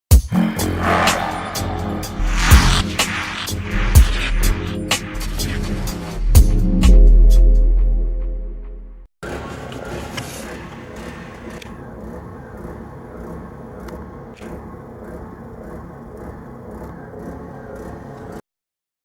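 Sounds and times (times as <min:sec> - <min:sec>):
vehicle rumble: 0:00.4 - 0:06.2, 0:09.4 - 0:18.4.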